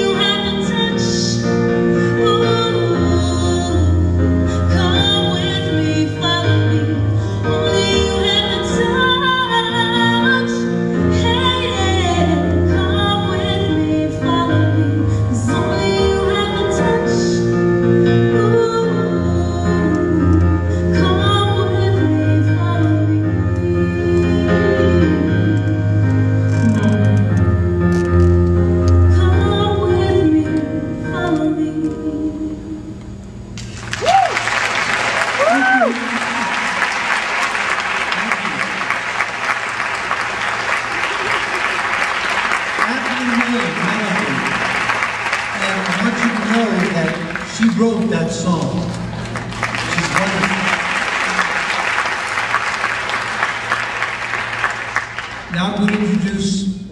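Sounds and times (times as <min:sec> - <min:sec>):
woman singing a slow song: 0:00.0 - 0:27.4, 0:29.0 - 0:33.1
instrumental backing music: 0:00.0 - 0:34.0
applause: 0:33.6 - 0:56.2
person whooping: 0:34.0 - 0:34.5, 0:35.2 - 0:36.8.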